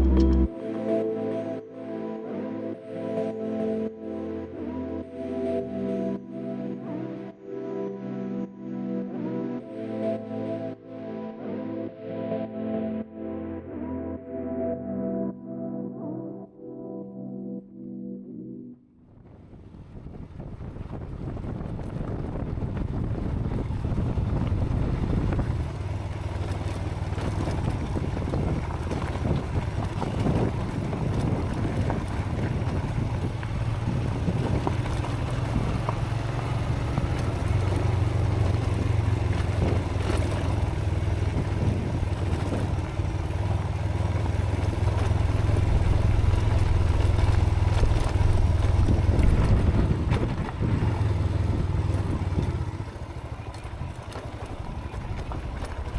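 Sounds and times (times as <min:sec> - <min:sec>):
motorcycle engine running: 0:00.0 - 0:00.5, 0:19.2 - 0:55.9
tyres on gravel track: 0:00.0 - 0:08.2, 0:19.2 - 0:55.9
wind buffeting microphone: 0:19.1 - 0:55.9.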